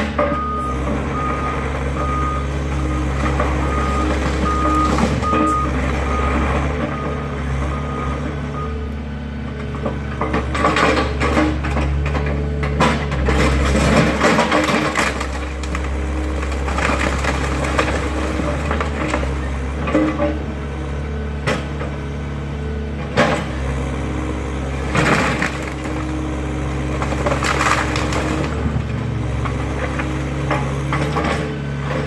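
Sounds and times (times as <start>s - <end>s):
diesel engine drone: 0.0s - 32.0s
backup alarm beeping: 0.4s - 8.9s
wood crackling and crunching: 9.8s - 20.1s, 24.8s - 31.2s.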